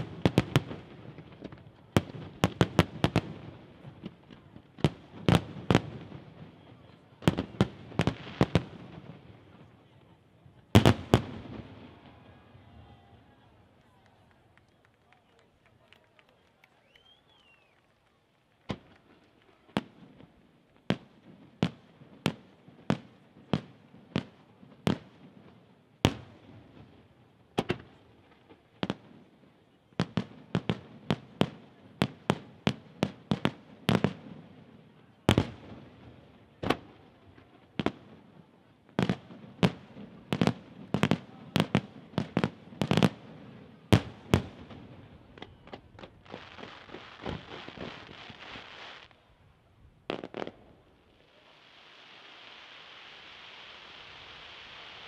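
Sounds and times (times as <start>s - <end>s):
fireworks bursting with sharp bangs: 0.0s - 14.1s, 18.6s - 49.4s, 50.0s - 55.0s
dense firework hiss: 46.0s - 49.2s, 50.1s - 55.0s.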